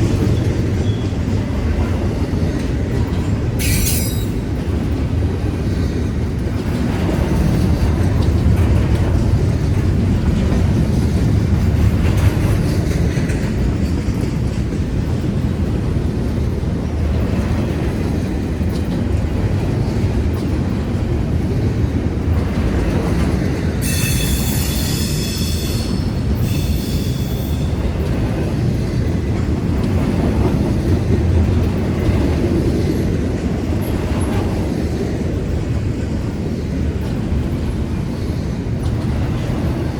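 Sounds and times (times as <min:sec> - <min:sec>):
train wheels rumbling on rail: 0:00.0 - 0:39.9
high-pitched wheel squeal: 0:23.8 - 0:27.8.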